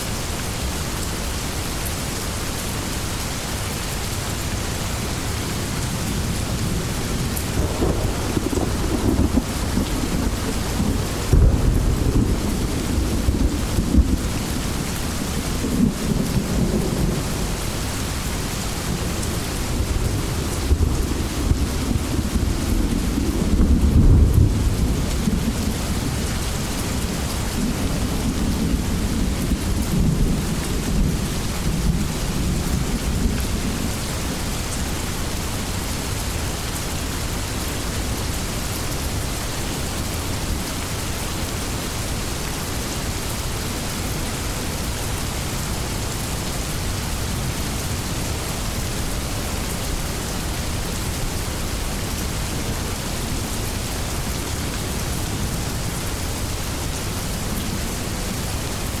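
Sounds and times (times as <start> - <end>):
heavy rain hissing: 0.0 - 59.0
low thunder rumble: 4.6 - 34.7.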